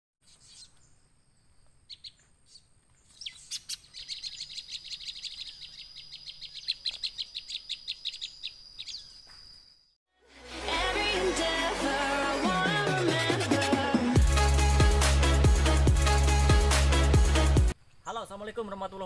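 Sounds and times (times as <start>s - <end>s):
bird singing sharp chirps: 0.2s - 1.0s, 1.9s - 10.0s.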